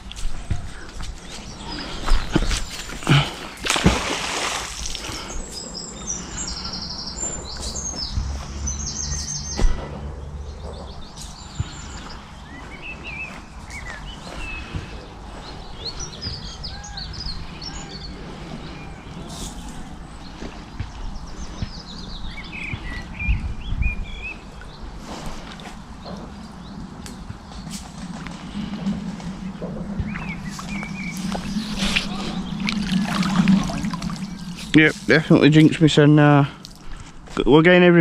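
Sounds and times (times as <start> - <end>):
small birds singing and chirping: 0.0 - 38.0
splash-like rush of noise: 27.8 - 35.3.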